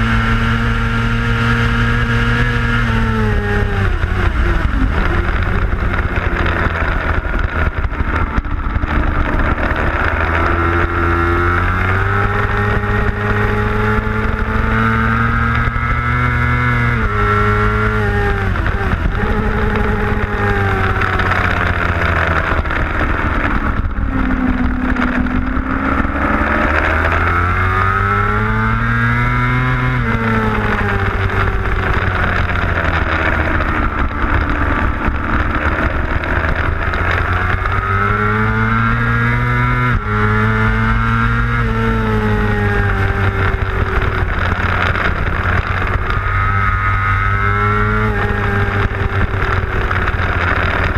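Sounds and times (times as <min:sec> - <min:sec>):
motorcycle engine accelerating: 0:00.0 - 0:50.9
wind rushing over microphone: 0:00.0 - 0:50.9.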